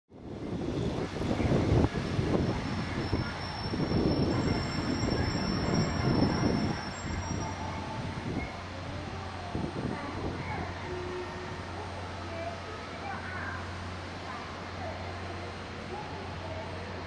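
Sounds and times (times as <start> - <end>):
train rumbling: 0.2 - 17.0
high wheel squeal: 2.4 - 8.7.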